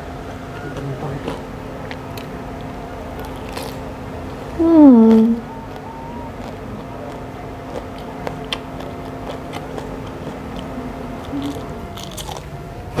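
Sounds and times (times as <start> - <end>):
chewing: 0.2 - 4.4, 5.1 - 12.8
crunching bites into chili: 0.5 - 3.9, 5.6 - 12.6.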